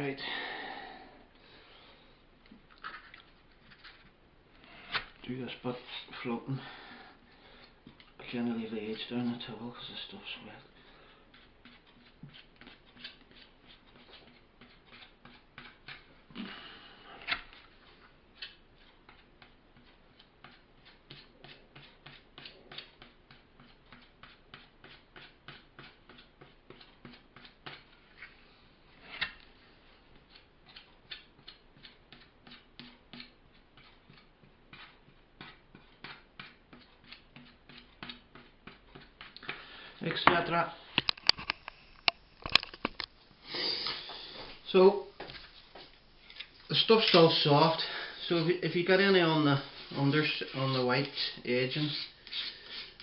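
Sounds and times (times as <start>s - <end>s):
filling knife scraping: 11.0s - 16.0s, 49.6s - 53.0s.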